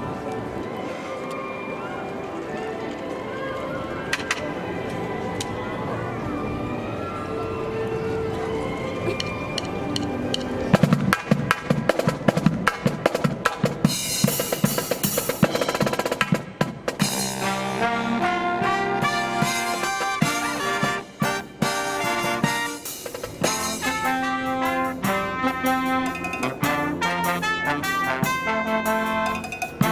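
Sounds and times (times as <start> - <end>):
snare and bass drums: 10.8 - 18.1, 18.8 - 29.9
brass sustained chords: 17.0 - 29.9.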